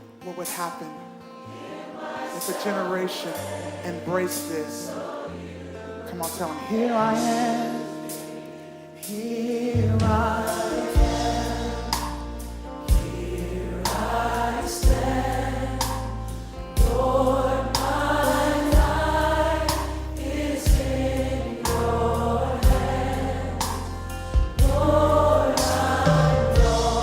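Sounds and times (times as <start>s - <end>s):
choir singing: 1.4s - 27.0s
band playing: 9.8s - 27.0s.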